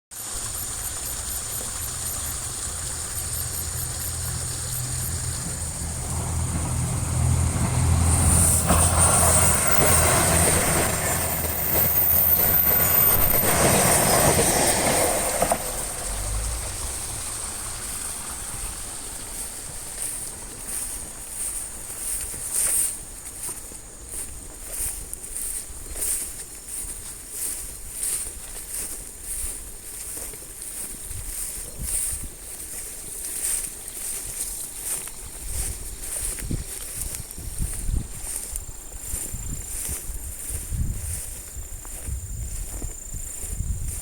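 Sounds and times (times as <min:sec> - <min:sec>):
train passing on rails: 0:00.1 - 0:24.7.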